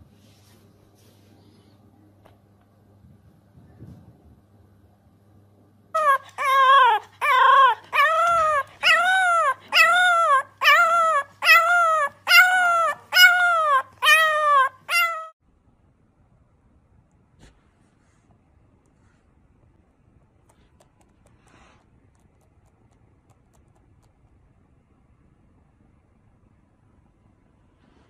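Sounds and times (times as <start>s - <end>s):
puppy howling: 6.0s - 15.4s.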